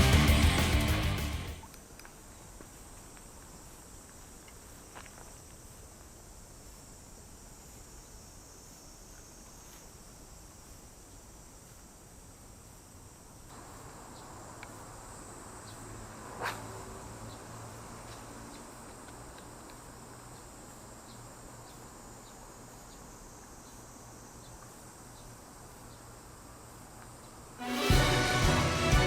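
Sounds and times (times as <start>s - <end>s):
crickets chirring: 1.6s - 27.6s
faint regular ticks: 18.0s - 23.8s.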